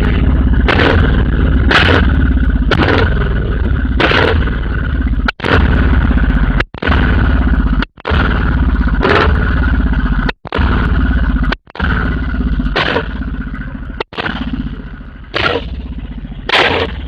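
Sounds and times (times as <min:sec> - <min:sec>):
exhaust pops: 0:00.0 - 0:17.0
motorcycle engine thumping: 0:00.0 - 0:17.0.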